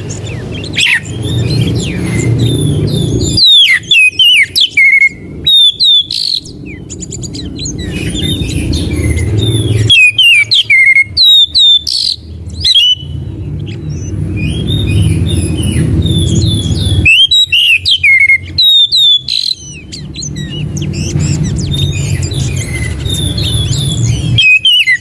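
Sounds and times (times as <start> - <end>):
bird whistling and chirping: 0.0 - 25.0
steady low hum: 0.0 - 25.0.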